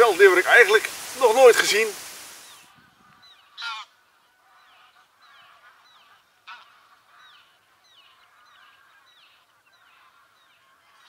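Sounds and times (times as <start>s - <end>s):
bird calls: 0.0s - 11.0s
bird honking call: 3.2s - 11.0s.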